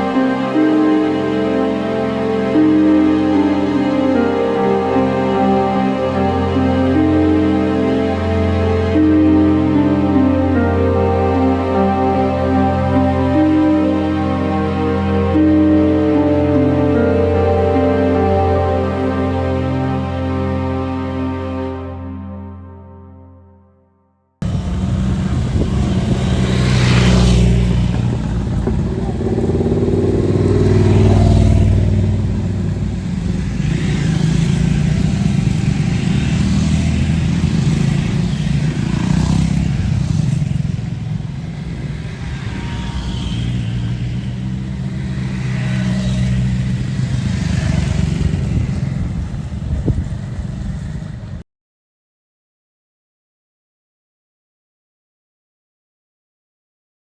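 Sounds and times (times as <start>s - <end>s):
motorcycle engine accelerating: 24.4s - 51.4s.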